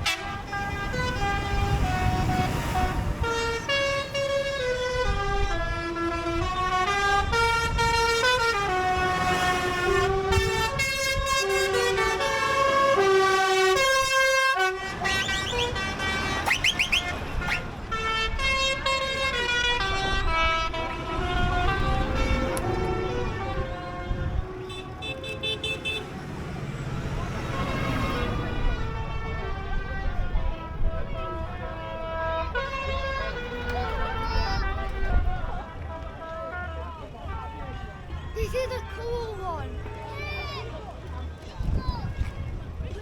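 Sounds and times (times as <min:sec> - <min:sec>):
tractor and truck engines: 0:00.0 - 0:43.0
tune in long held notes: 0:18.9 - 0:25.4.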